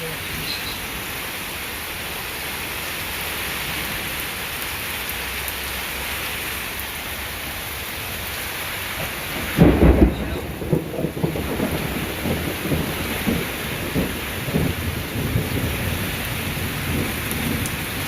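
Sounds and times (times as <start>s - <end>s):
heavy rain falling: 0.0s - 18.0s
thunder rumble: 8.9s - 18.0s.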